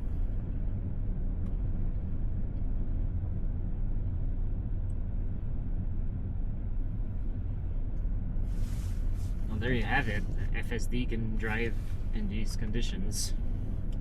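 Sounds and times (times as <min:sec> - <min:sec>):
tyre and road noise: 0:08.4 - 0:14.0.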